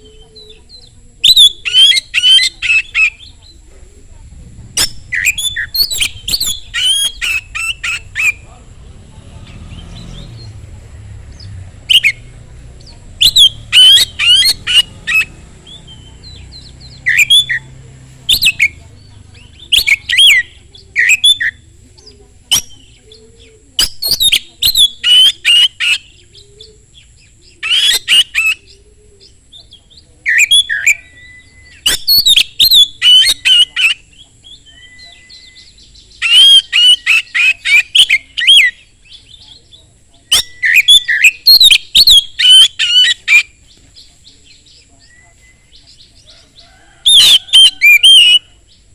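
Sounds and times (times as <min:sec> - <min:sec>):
bird singing chattering notes: 0:00.0 - 0:48.9
bird whistles: 0:01.2 - 0:03.3, 0:04.8 - 0:08.4, 0:13.2 - 0:16.2, 0:16.9 - 0:17.7, 0:18.3 - 0:18.8, 0:19.6 - 0:21.6, 0:30.3 - 0:39.4, 0:40.3 - 0:43.6, 0:47.1 - 0:48.5.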